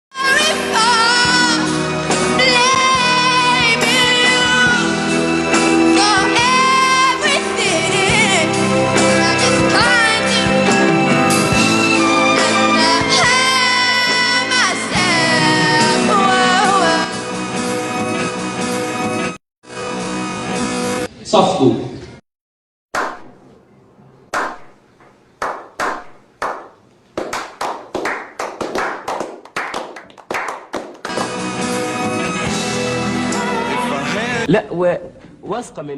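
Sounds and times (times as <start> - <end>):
instrumental accompaniment: 0.3 - 21.1, 31.1 - 34.5
hand claps keeping a beat: 24.3 - 24.8, 25.4 - 31.5.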